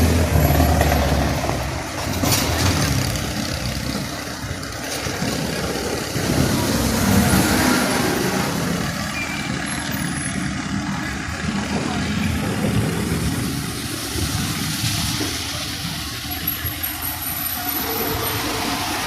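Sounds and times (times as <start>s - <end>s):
vehicles on wet road: 0.0s - 19.0s
heavy rain: 10.9s - 19.0s.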